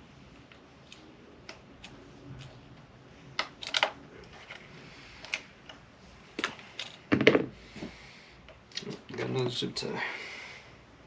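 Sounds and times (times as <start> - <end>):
plastic parts clicking: 3.4 - 4.6.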